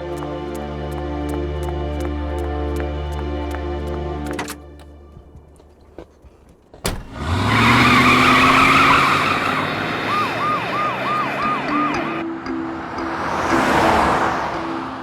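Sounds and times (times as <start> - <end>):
car engine revving: 6.9 - 12.2
police siren yelp: 7.2 - 12.2.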